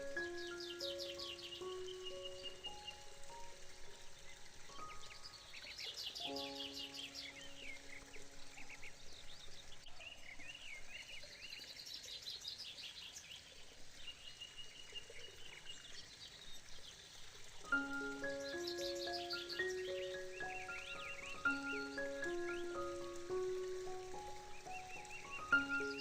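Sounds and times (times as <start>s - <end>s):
birds chirping and singing: 0.0s - 13.5s, 17.7s - 26.0s
background hiss: 0.0s - 26.0s
soft held musical chord: 17.7s - 26.0s.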